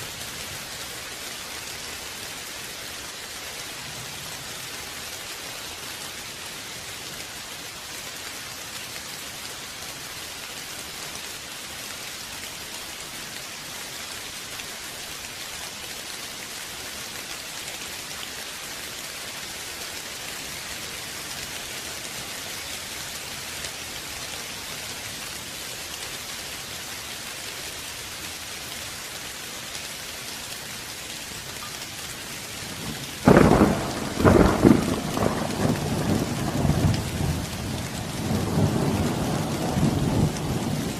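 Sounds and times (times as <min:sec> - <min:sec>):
steady rain falling: 0:00.0 - 0:40.9
rumbling thunderclap: 0:33.2 - 0:40.8.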